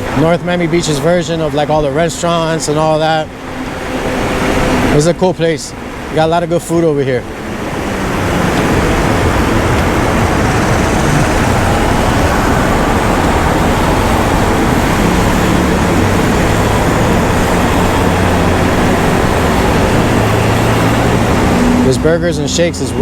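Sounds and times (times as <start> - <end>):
low hum of road traffic: 0.0 - 23.0
wind noise over microphone: 7.3 - 21.9.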